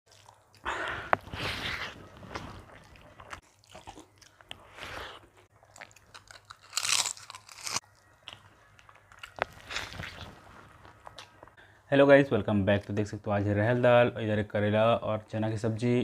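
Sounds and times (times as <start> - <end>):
crunching and chewing: 0.1 - 11.6.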